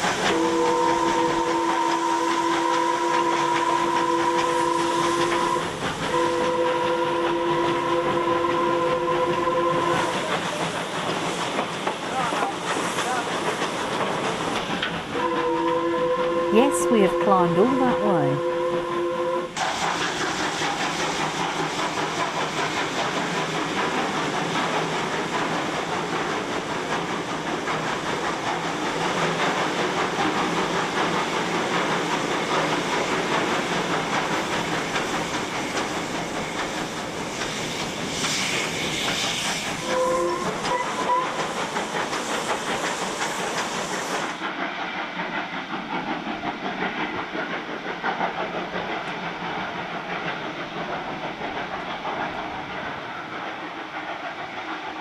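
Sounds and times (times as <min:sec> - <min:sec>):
steam hissing: 0:00.0 - 0:18.3, 0:19.0 - 0:55.0
train rolling over rails: 0:00.0 - 0:55.0
train whistle toots: 0:00.2 - 0:10.4, 0:15.2 - 0:19.6, 0:38.1 - 0:41.6.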